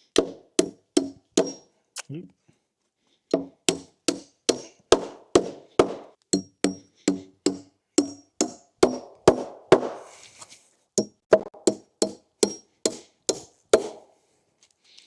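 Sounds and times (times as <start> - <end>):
hammer striking nails into wood: 0.2 - 1.6, 3.3 - 10.0, 11.0 - 14.1.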